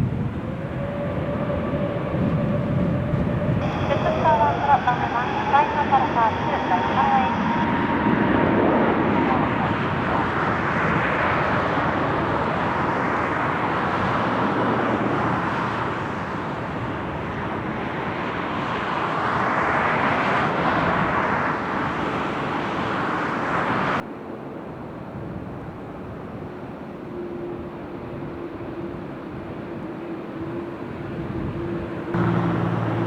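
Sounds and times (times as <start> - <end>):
jet engine rushing: 0.0 - 24.0, 32.1 - 33.0.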